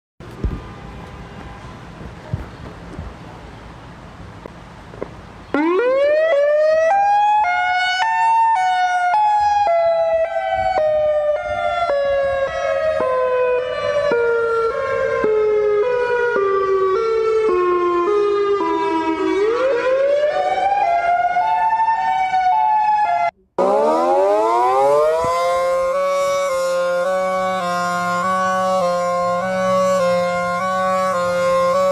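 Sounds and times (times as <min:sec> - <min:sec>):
tornado warning siren wailing: 0:05.5 - 0:31.9.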